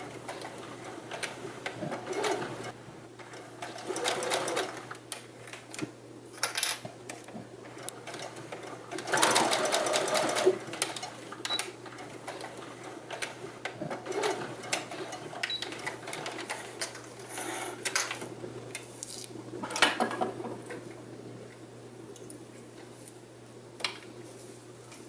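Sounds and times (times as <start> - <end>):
sewing machine running: 1.9 - 2.7, 3.6 - 4.9, 8.0 - 11.1, 14.0 - 16.6.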